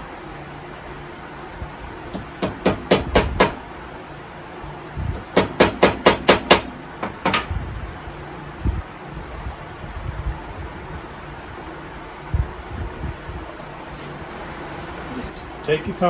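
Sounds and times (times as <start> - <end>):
hammer tapping metal punch: 2.1 - 3.6, 5.2 - 7.5.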